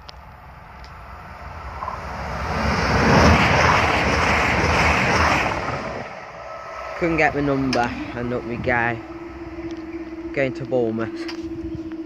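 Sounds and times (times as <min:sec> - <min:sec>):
diesel train passing: 0:00.0 - 0:12.0.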